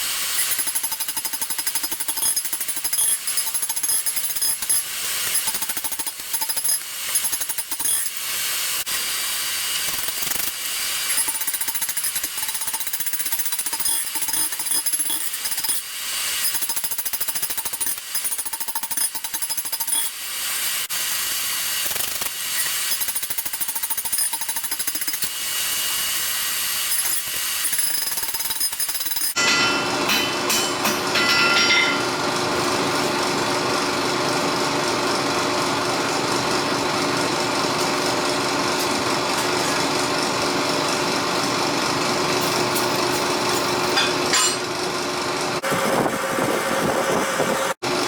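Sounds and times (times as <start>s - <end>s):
hammering on metal: 29.4s - 32.1s.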